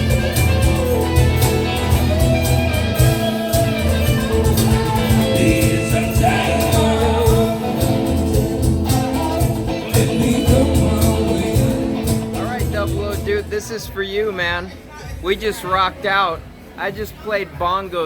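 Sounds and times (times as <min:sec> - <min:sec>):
rock band playing: 0:00.0 - 0:13.7
person singing: 0:03.2 - 0:12.7.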